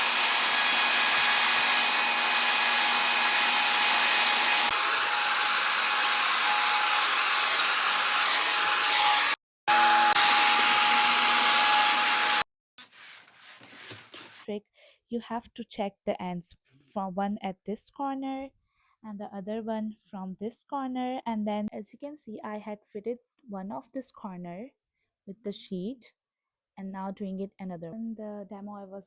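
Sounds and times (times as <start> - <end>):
vacuum cleaner running: 0.0 - 14.4.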